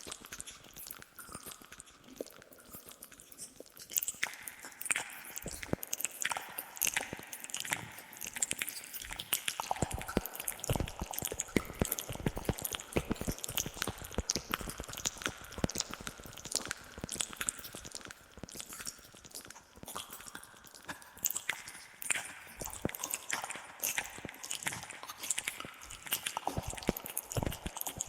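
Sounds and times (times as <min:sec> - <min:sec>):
wet mouth clicks and smacks: 0:00.0 - 0:28.0.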